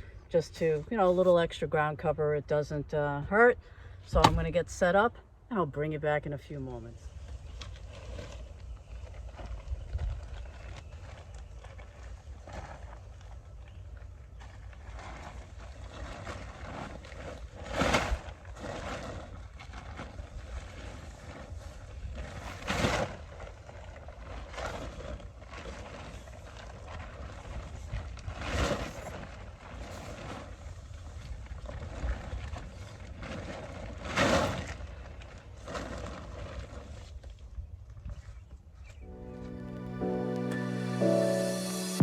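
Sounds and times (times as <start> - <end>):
wind rumble on microphone: 7.0 - 39.0.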